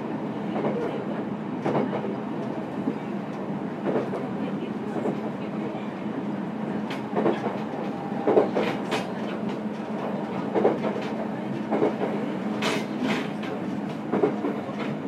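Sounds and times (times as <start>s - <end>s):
railcar motor drone: 5.9s - 15.0s.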